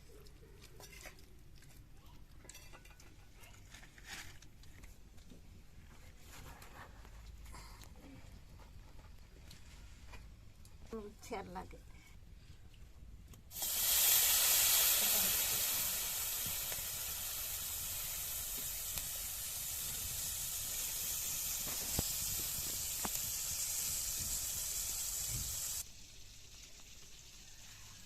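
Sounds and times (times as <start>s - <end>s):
food sizzling in hot oil: 13.5s - 28.0s.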